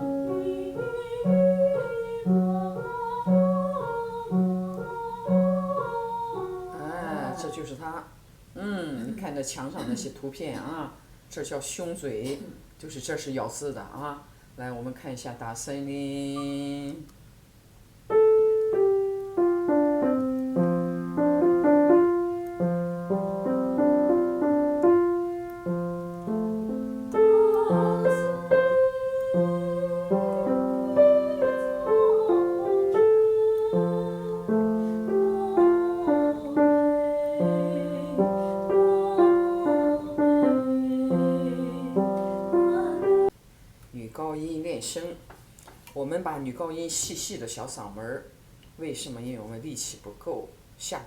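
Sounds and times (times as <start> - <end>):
piano accompaniment: 0.0 - 7.7, 18.1 - 43.4.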